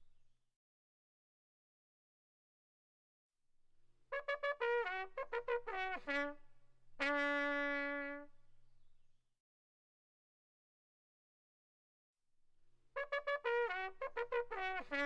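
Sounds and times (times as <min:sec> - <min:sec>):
trumpet phrase: 0:04.2 - 0:06.4, 0:07.0 - 0:08.3, 0:13.0 - 0:15.0.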